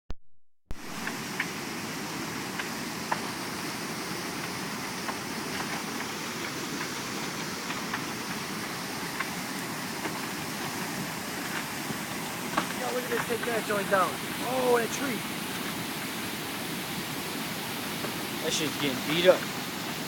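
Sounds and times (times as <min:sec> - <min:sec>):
floodwater rushing in river: 0:00.7 - 0:20.0.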